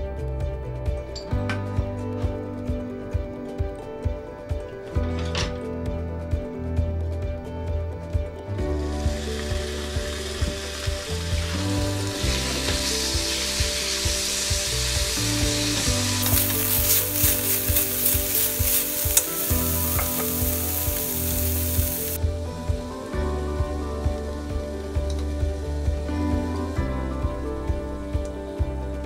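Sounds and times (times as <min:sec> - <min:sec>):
background music: 0:00.0 - 0:29.0
meat sizzling in hot oil: 0:09.0 - 0:22.2
oil spattering crackles: 0:10.3 - 0:22.2.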